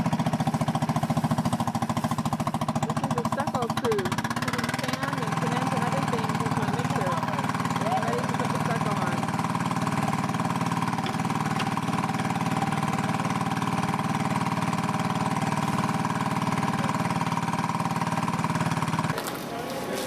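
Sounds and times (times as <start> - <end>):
mixer engine running: 0.0 - 20.0.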